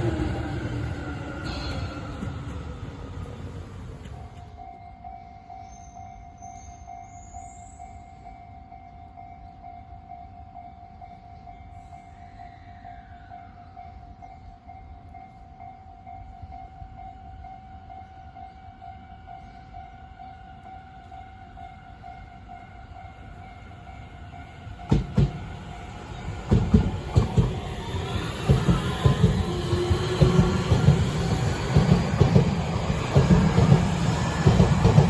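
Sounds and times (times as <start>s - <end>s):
train rumble: 0.0s - 5.6s, 8.2s - 35.0s
train wheels clattering: 24.6s - 35.0s
train sharp thumps: 24.8s - 35.0s.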